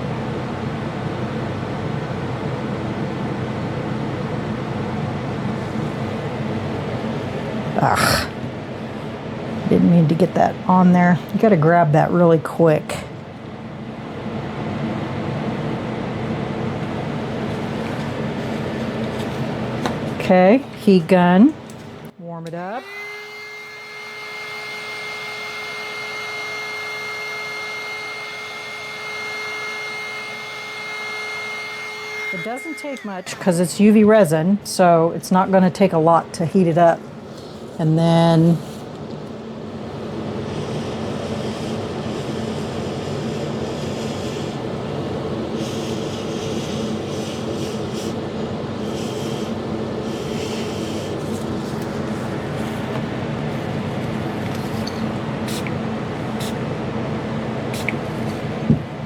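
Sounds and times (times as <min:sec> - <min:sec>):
heat gun motor humming: 0:16.7 - 0:34.4, 0:37.8 - 0:59.0.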